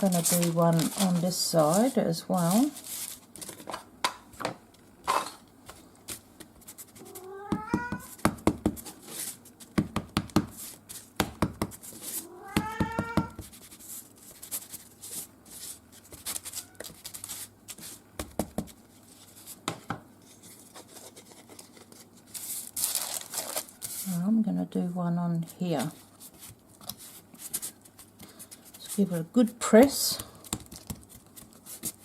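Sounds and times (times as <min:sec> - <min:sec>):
paper rustling: 0:00.0 - 0:03.8, 0:20.3 - 0:24.2.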